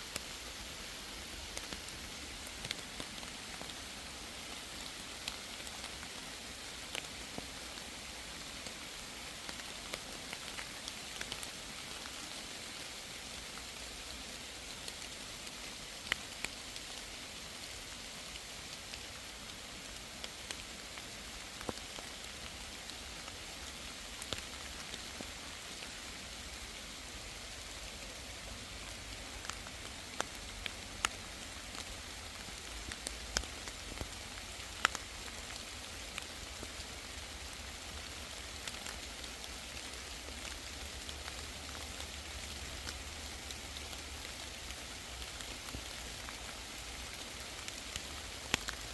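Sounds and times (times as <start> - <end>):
steady rain hiss: 0.0 - 48.9.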